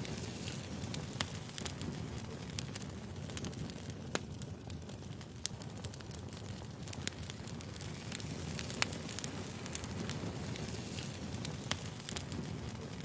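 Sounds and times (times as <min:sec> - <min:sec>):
firewood crackling and popping: 0:00.0 - 0:13.0
low rumble of flames: 0:00.0 - 0:13.0.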